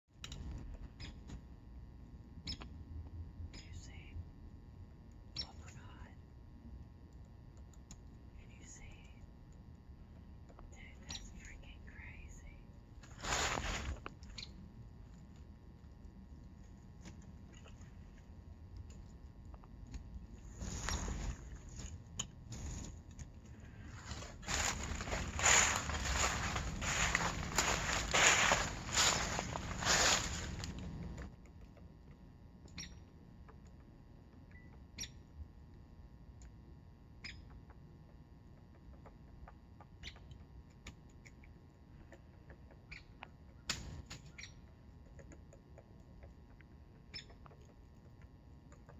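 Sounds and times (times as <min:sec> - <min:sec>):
rustling noise: 0:13.0 - 0:14.1, 0:20.4 - 0:31.3
woodpecker tapping on wood: 0:37.2 - 0:41.4, 0:42.0 - 0:48.9.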